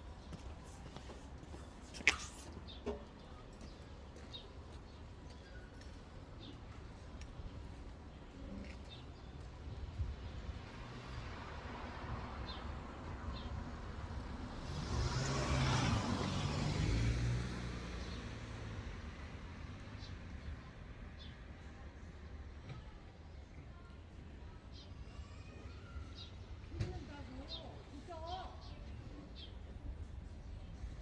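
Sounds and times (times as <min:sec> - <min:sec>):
vehicle passing by: 0:14.0 - 0:20.1.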